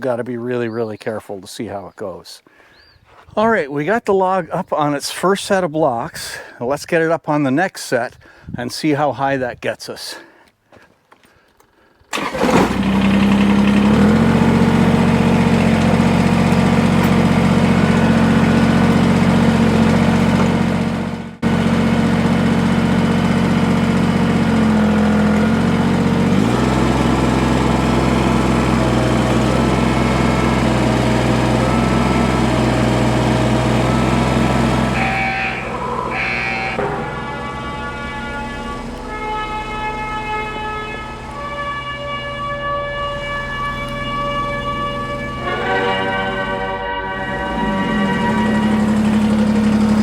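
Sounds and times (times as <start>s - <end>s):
tractor engine revving: 12.1s - 50.0s.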